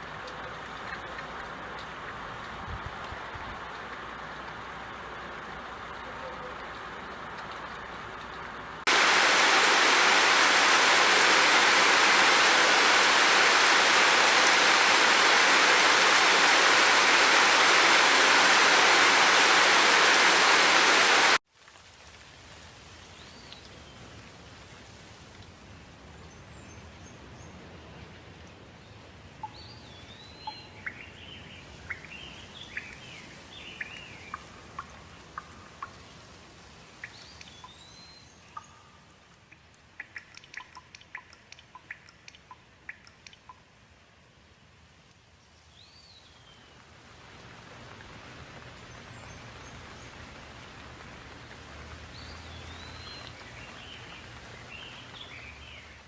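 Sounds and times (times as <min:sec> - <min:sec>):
heavy rain: 0:00.0 - 0:21.4, 0:46.8 - 0:56.0
birds chirping: 0:08.9 - 0:21.4.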